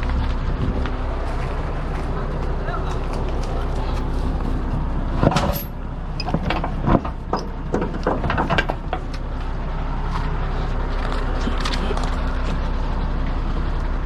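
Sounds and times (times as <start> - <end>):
vehicle engine running: 0.0 - 14.0
sharp clicks and knocks: 5.2 - 9.3.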